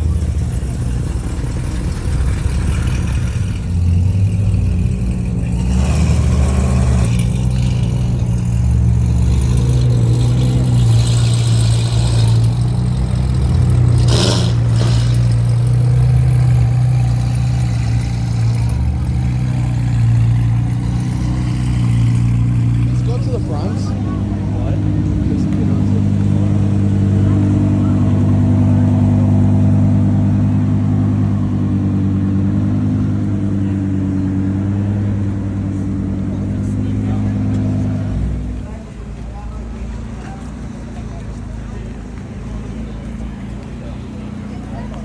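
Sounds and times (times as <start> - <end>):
car engines revving: 0.0 - 45.0.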